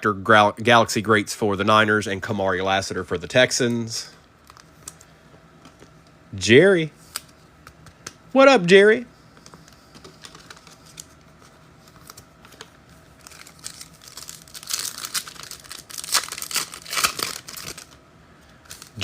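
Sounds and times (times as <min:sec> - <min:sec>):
foil wrapper crinkling and tearing: 0:10.2 - 0:18.0, 0:18.6 - 0:19.0.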